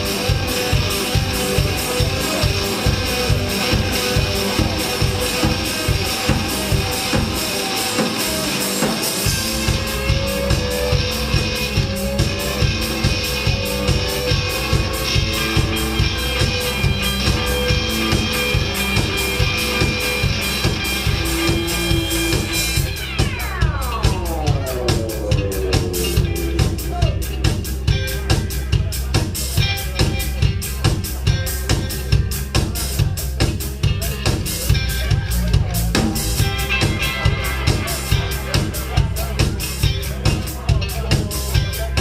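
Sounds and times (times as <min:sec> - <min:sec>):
drum kit beat: 0:00.0 - 0:31.6
bass: 0:00.0 - 0:42.0
guitar: 0:00.0 - 0:42.0
falling pitch sweep: 0:20.9 - 0:28.7.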